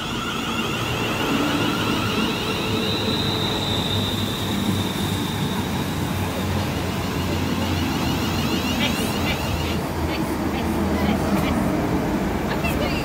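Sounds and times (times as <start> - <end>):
thin high whine: 0.0 - 9.8
electric train running past: 0.0 - 13.0.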